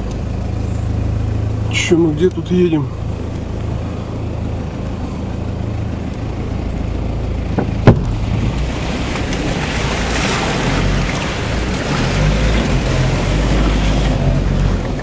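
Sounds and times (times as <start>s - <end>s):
road noise: 0.0s - 15.0s
vehicle engine drone: 0.0s - 15.0s
sharp knock: 7.6s - 8.2s.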